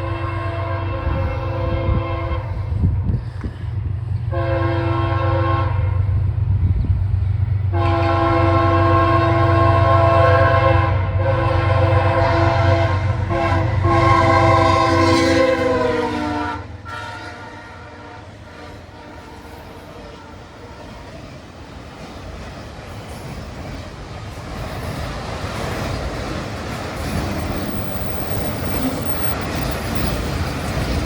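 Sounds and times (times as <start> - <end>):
locomotive air horn: 0.0 - 2.8, 4.3 - 6.2, 7.7 - 21.0
train running: 0.0 - 31.0.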